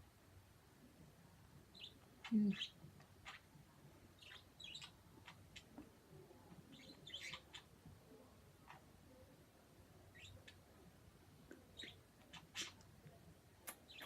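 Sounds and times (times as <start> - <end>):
soft bird chirps: 1.7 - 3.5, 4.2 - 5.7, 6.7 - 7.7, 10.1 - 10.6, 11.6 - 12.9, 13.6 - 14.0.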